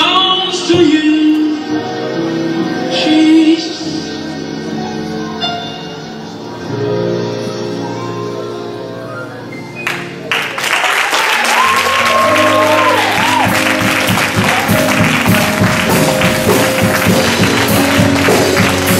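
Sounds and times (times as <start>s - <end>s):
music: 0.0s - 18.9s
audience applause: 9.8s - 18.9s
music with steady beat: 12.4s - 18.9s.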